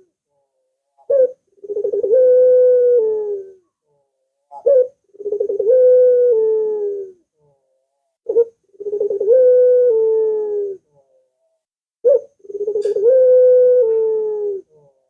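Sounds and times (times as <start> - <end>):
dove cooing: 1.0 - 3.7, 4.5 - 7.6, 8.3 - 11.1, 12.0 - 15.0.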